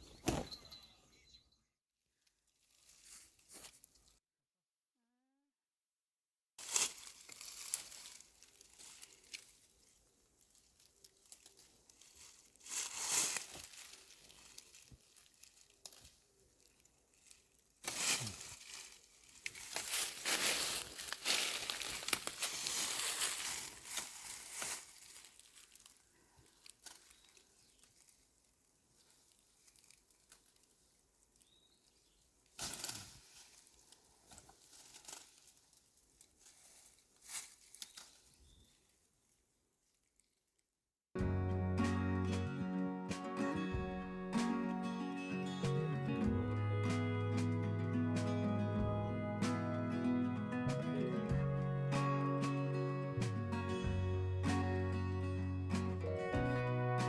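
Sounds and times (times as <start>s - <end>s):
material crinkling and rustling: 6.6s - 38.6s.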